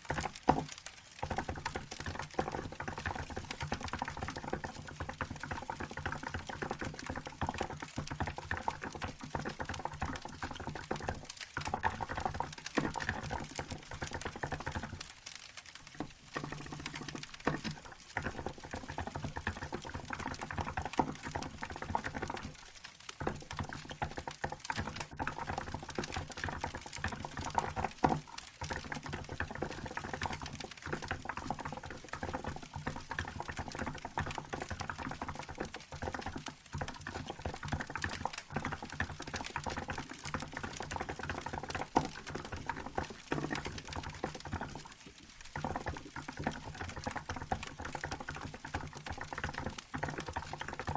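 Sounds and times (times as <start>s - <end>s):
crackling wood fire: 0.0s - 50.9s
mechanical keyboard typing: 15.9s - 18.4s.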